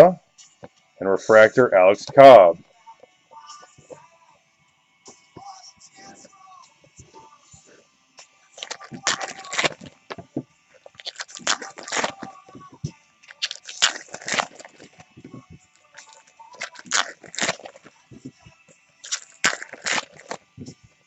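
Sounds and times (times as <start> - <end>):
cards rustling and sliding: 8.6 - 10.2, 10.9 - 12.3, 13.3 - 15.1, 16.0 - 17.9, 19.1 - 20.4
wrapper crinkling: 8.6 - 10.2, 10.9 - 12.4, 13.3 - 15.0, 15.9 - 18.0, 19.0 - 20.4.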